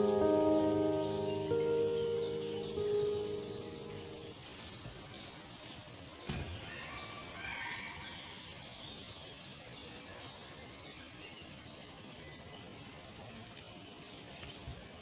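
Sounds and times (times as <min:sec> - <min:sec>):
birds chirping: 0:00.0 - 0:07.1.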